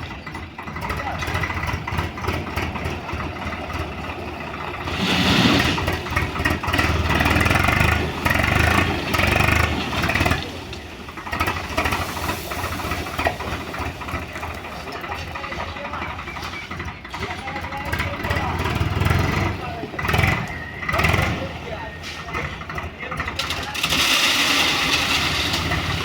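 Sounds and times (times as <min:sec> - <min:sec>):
heavy diesel machinery engine: 0:00.0 - 0:26.0.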